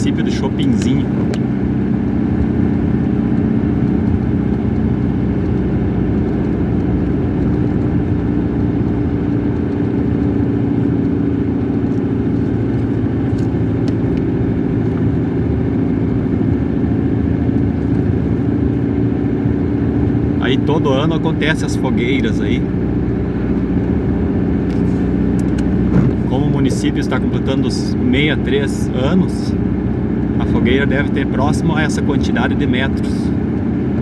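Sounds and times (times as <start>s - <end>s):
car engine drone: 0.0s - 34.0s
road noise: 0.0s - 34.0s.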